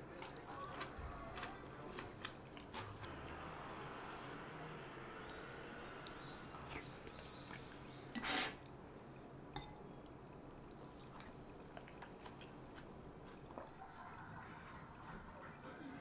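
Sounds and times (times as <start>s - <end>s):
person chewing: 0.0s - 3.4s, 6.0s - 13.6s
slurp: 6.5s - 8.7s.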